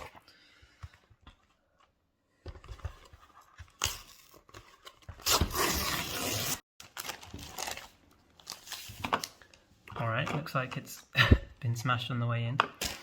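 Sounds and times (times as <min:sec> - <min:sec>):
wrapping rustling and crinkling: 0:03.0 - 0:09.7.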